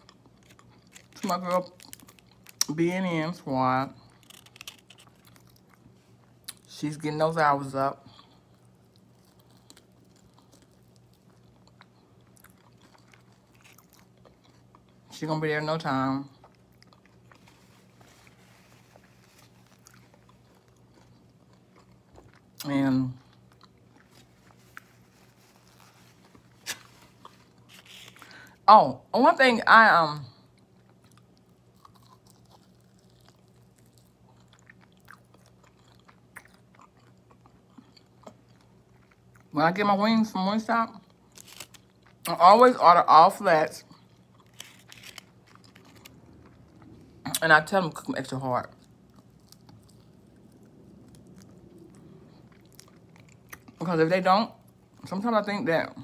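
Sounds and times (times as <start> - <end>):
chewing and mouth clicks: 0.0 - 2.7, 8.1 - 15.1, 16.3 - 17.8, 19.0 - 25.6, 30.5 - 39.5, 43.9 - 47.1, 48.7 - 53.8
steady low hum: 0.0 - 56.0.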